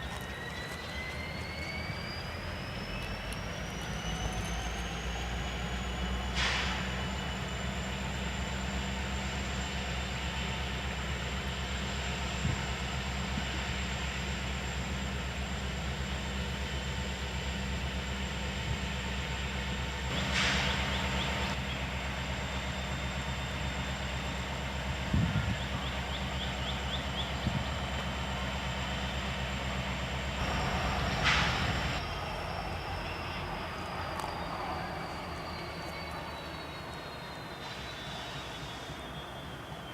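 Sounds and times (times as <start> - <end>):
diesel locomotive engine running: 0.0 - 39.9.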